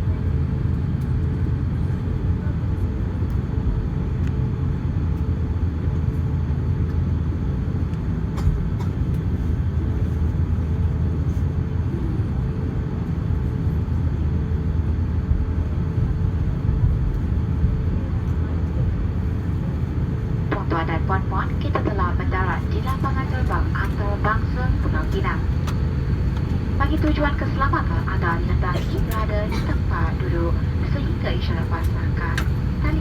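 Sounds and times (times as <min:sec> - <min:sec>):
aircraft cabin rumble while taxiing: 0:00.0 - 0:33.0
faint steady hum: 0:14.8 - 0:33.0.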